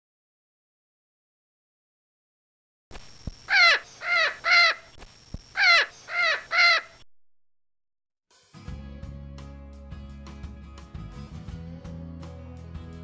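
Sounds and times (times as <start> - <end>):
loud falling bird calls: 3.5 - 4.9, 5.6 - 7.0.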